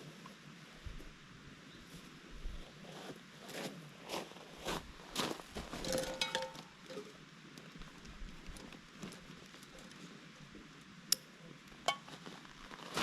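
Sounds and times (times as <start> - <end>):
small metal clinks: 5.8 - 7.1.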